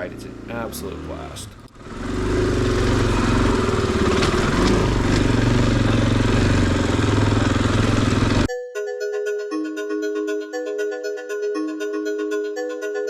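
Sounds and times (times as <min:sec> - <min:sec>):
dirt bike engine running: 0:00.0 - 0:08.5.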